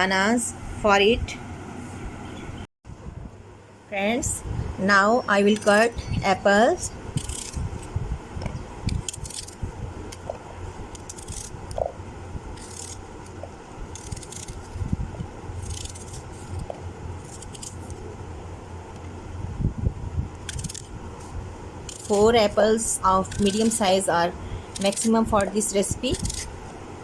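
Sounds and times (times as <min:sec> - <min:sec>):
knife cutting apples: 0:07.2 - 0:07.7, 0:08.9 - 0:18.0, 0:20.4 - 0:24.1, 0:24.8 - 0:26.8.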